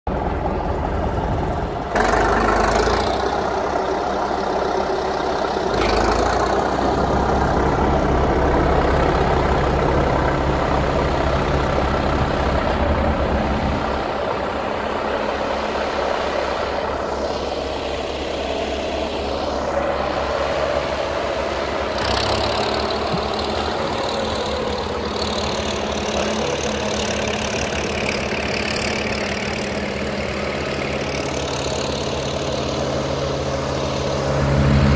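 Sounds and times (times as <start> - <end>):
tractor engine running: 0.1 - 34.9.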